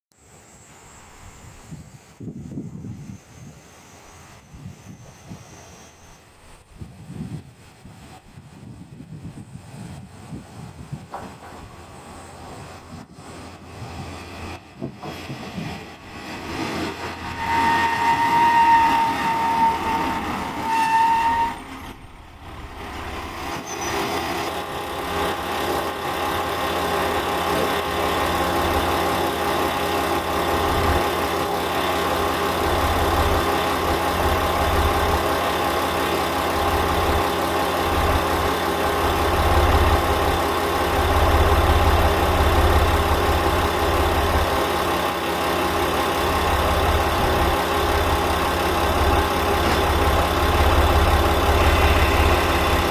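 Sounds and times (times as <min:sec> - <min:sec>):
diesel railcar engine rumbling: 0:00.2 - 0:52.9.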